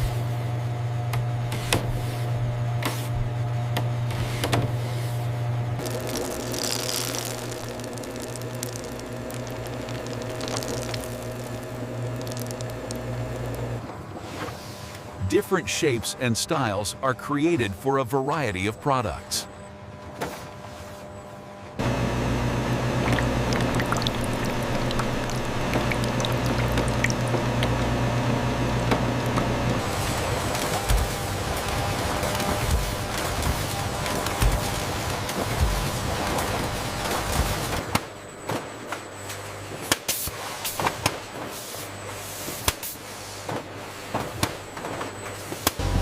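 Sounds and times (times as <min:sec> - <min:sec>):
machinery humming: 0:04.2 - 0:20.1, 0:21.8 - 0:37.9, 0:45.7 - 0:46.0.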